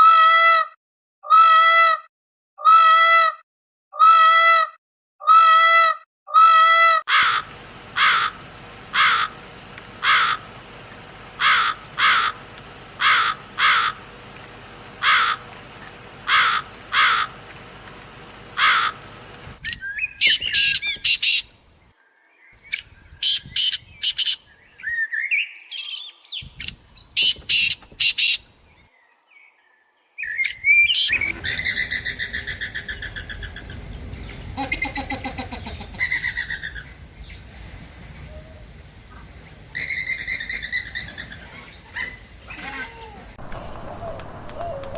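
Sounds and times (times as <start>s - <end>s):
bird calls: 7.1s - 21.9s, 22.5s - 34.6s, 43.4s - 44.9s
high bird chirping: 18.7s - 21.6s, 22.6s - 28.5s, 30.2s - 31.9s.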